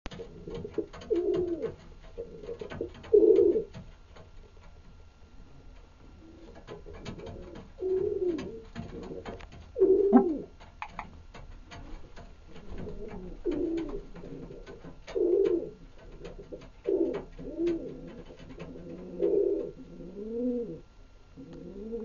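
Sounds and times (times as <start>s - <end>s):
pigeons cooing: 0.1s - 3.8s, 5.4s - 11.0s, 11.6s - 22.0s
small clicks and taps: 8.3s - 18.8s.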